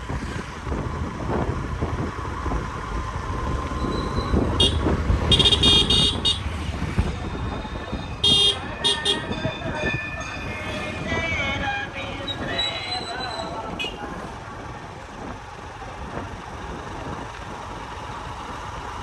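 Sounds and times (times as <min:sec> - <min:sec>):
passing traffic rumble: 0:00.0 - 0:19.0
wind: 0:00.0 - 0:19.0
vehicle horn honking: 0:03.8 - 0:06.5, 0:07.2 - 0:14.2.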